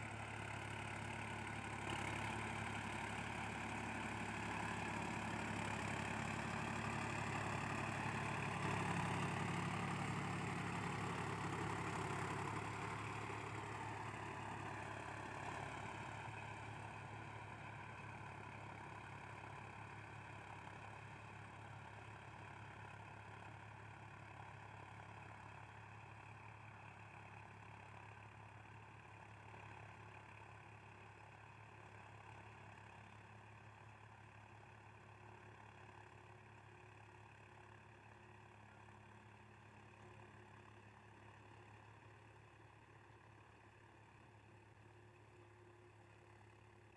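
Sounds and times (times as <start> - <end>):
tractor diesel engine running: 0.0 - 24.8.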